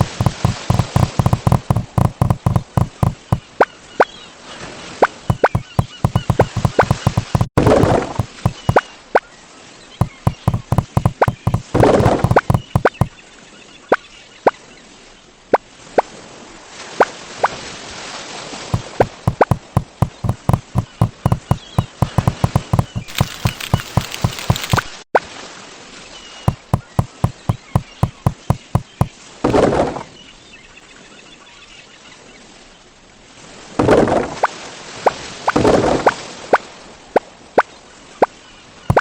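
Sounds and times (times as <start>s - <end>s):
short sharp knocks: 0.0s - 3.4s, 5.3s - 7.6s, 8.2s - 8.8s, 10.0s - 13.1s, 18.8s - 24.9s, 26.5s - 29.1s.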